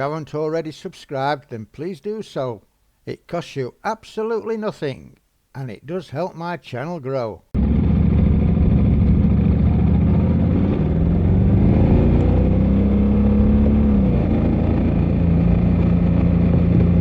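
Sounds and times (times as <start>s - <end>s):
motorcycle engine running: 7.6s - 17.0s
wind and road noise: 7.6s - 17.0s.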